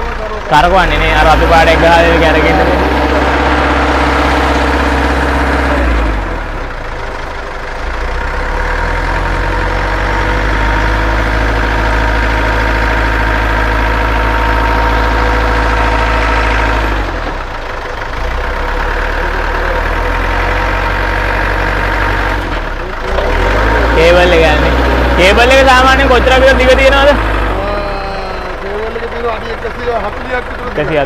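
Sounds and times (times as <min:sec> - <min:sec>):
truck engine running: 0:00.0 - 0:31.0
hydraulic whine: 0:00.9 - 0:06.7.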